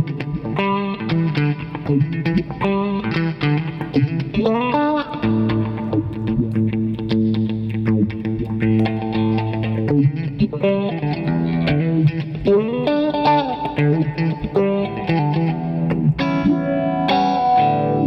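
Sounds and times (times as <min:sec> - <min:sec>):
electric guitar with phaser: 0:00.0 - 0:18.0.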